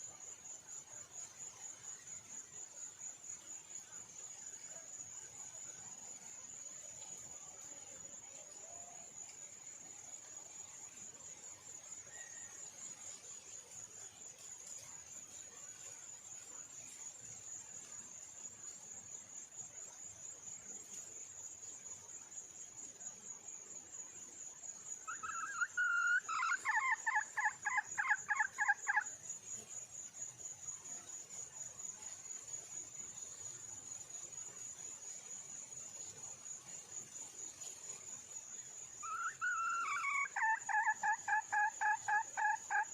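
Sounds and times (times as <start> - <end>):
high insect trill: 0.0 - 42.9
junglefowl hen clucking: 39.1 - 42.9.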